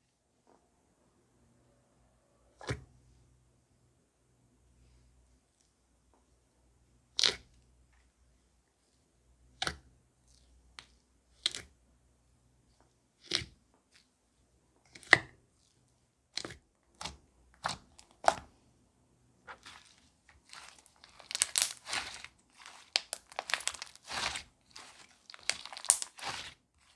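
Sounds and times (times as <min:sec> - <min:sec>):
slime popping and clicking: 0:20.6 - 0:26.5.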